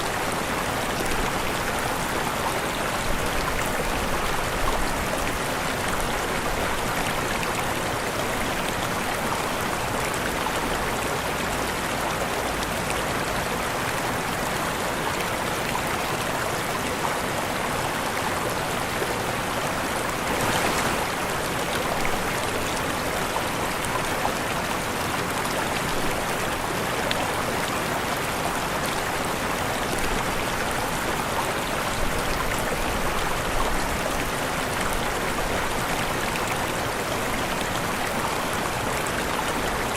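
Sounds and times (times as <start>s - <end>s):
waterfall rushing: 17.7s - 39.9s.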